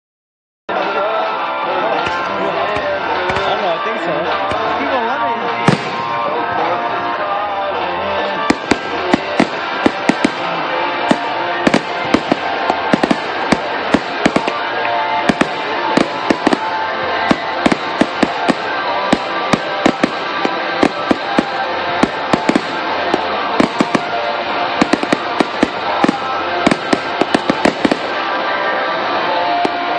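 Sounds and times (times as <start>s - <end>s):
music playing: 0.7s - 29.9s
fireworks bangs and crackles: 2.0s - 3.6s, 5.6s - 6.6s, 8.4s - 29.9s.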